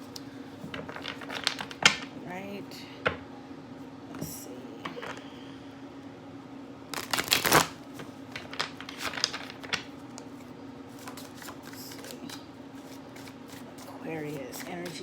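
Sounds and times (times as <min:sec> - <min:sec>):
cards being shuffled: 0:00.7 - 0:02.1, 0:07.0 - 0:15.0.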